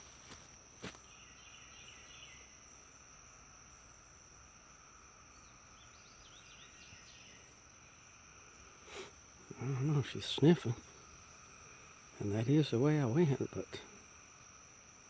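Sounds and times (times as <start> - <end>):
insects buzzing drone: 0.0 - 15.0.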